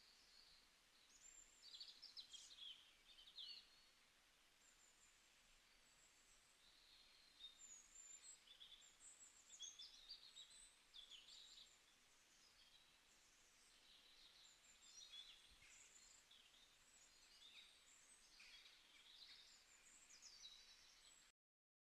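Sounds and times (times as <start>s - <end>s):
low background hiss: 0.0s - 21.3s
birds chirping and trilling: 0.2s - 3.9s, 4.6s - 21.3s.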